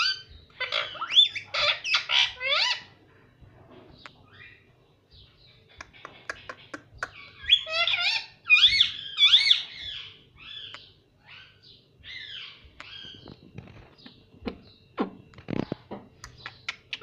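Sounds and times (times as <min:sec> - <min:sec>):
parrot chirping: 0:00.0 - 0:03.0, 0:05.5 - 0:13.3, 0:16.2 - 0:17.0.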